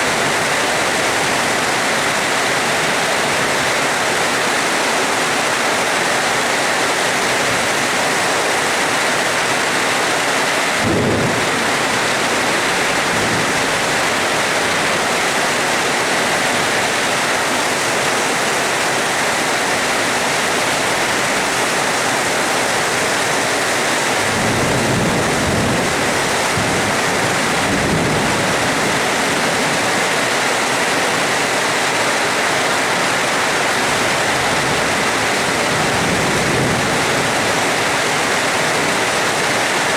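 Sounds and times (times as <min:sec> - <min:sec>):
steady rain: 0:00.0 - 0:39.9
thunder clap: 0:10.7 - 0:14.8
low thunder rumble: 0:10.7 - 0:14.9.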